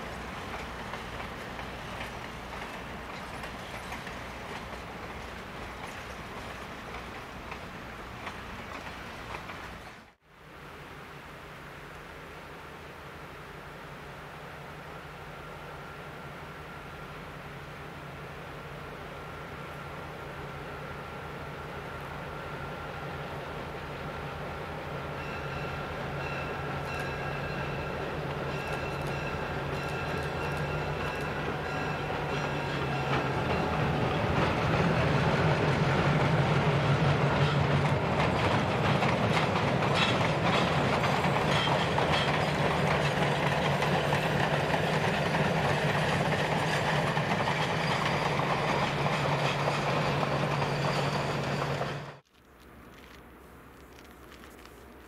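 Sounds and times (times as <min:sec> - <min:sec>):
diesel locomotive engine hum: 0:00.0 - 0:10.2, 0:13.4 - 0:55.0
train wheels clattering on rails: 0:00.0 - 0:10.2, 0:25.1 - 0:52.2.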